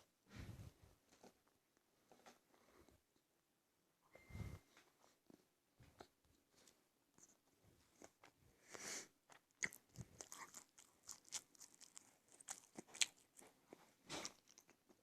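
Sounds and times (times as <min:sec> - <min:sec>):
chewing and biting food: 0:09.3 - 0:15.0.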